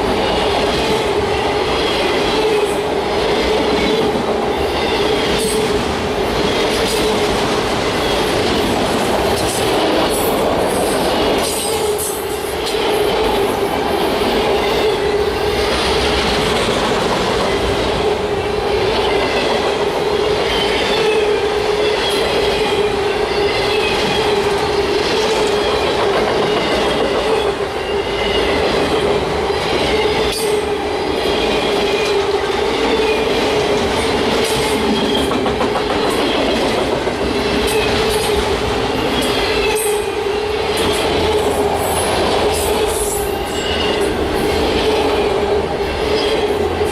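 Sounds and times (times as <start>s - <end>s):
train wheels squealing: 39.1s - 45.1s.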